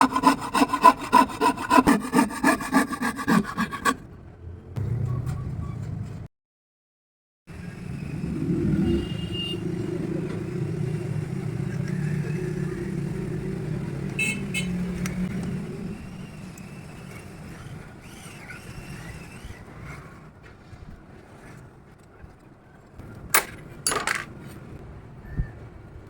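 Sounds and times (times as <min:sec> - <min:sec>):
low motor hum: 0:07.5 - 0:17.6.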